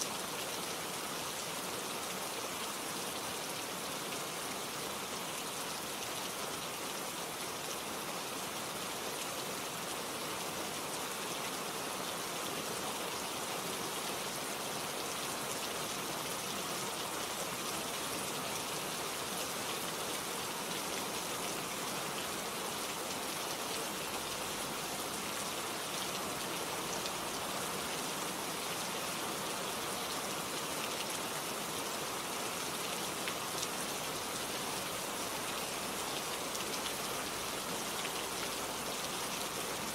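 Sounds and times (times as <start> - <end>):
rain pattering on leaves: 0.0 - 39.9.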